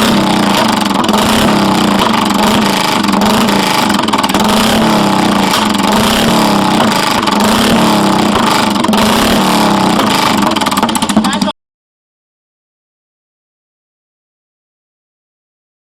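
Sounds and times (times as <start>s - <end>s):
single-cylinder motorcycle engine running: 0.0s - 11.6s.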